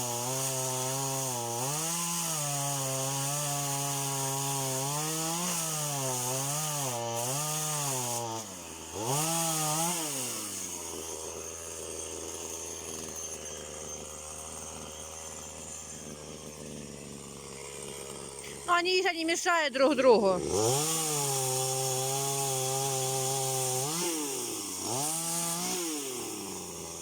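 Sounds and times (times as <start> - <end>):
chainsaw revving and idling: 0.0 - 27.0.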